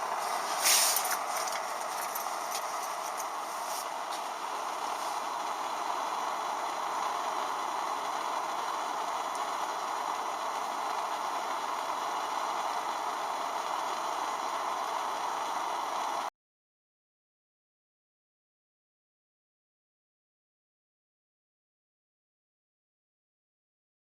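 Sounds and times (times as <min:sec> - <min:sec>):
steady rushing hiss: 0:00.0 - 0:05.4.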